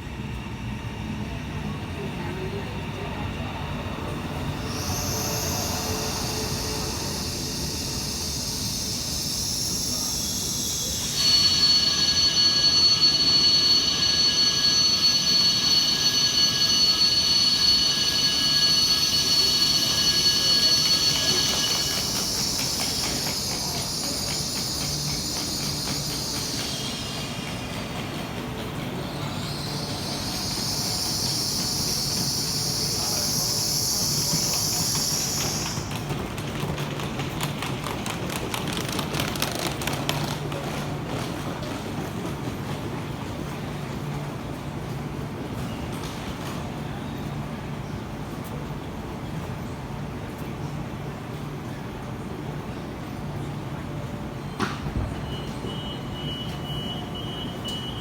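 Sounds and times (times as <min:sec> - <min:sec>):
train pulling into station: 0:00.0 - 0:58.0
rapid clicking from train wheels: 0:04.1 - 0:47.0
high-pitched squeal: 0:04.5 - 0:27.8, 0:29.0 - 0:36.0.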